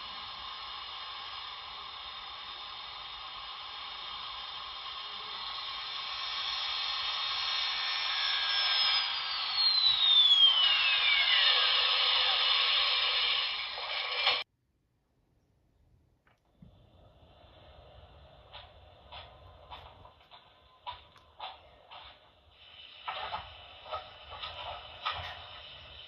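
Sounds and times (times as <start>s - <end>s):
hiss of venting steam: 0.0s - 14.4s, 16.7s - 26.0s
whine falling in pitch: 7.5s - 12.4s.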